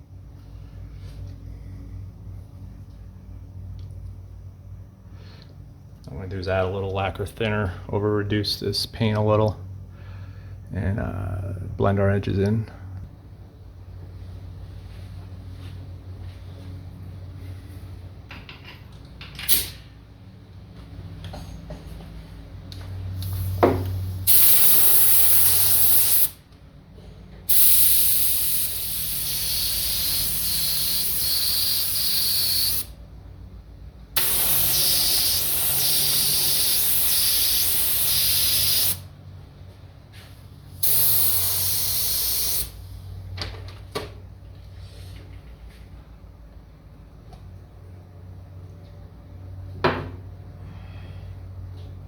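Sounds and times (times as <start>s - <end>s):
paint spraying in hissing bursts: 23.2s - 26.4s, 27.5s - 32.9s, 34.2s - 39.1s, 40.7s - 42.9s.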